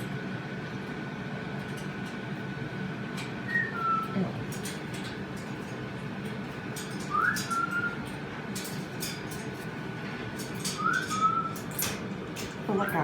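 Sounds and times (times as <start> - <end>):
cockatoo whistling: 3.4 - 4.3, 7.0 - 8.1, 10.7 - 11.8.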